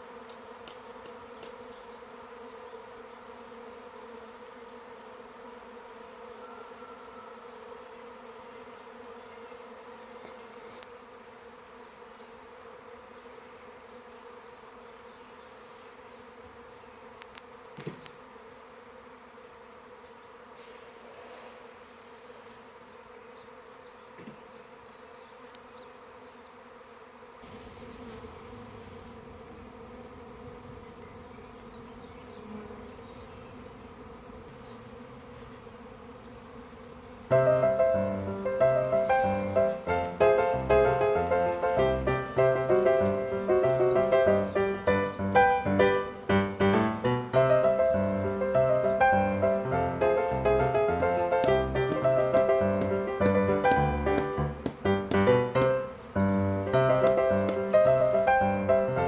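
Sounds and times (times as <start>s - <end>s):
bees buzzing: 0.0s - 59.0s
short knock: 51.0s - 55.9s.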